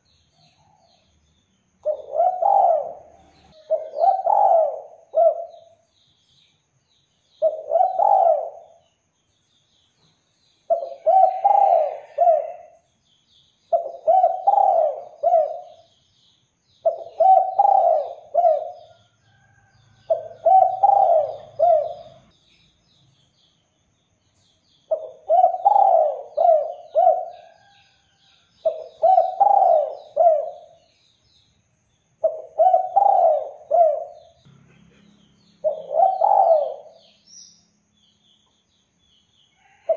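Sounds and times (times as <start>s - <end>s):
small birds chirping: 0.0s - 39.9s
dove cooing: 1.8s - 5.8s, 7.4s - 8.8s, 10.7s - 12.8s, 13.7s - 15.9s, 16.8s - 19.0s, 20.1s - 22.3s, 24.9s - 27.8s, 28.6s - 30.8s, 32.2s - 34.4s, 35.6s - 37.1s.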